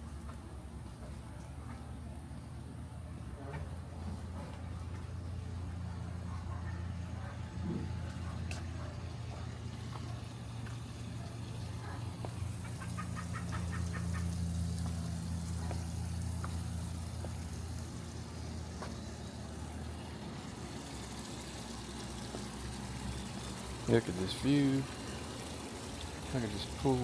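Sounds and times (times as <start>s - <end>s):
low machine hum: 0.0s - 27.0s.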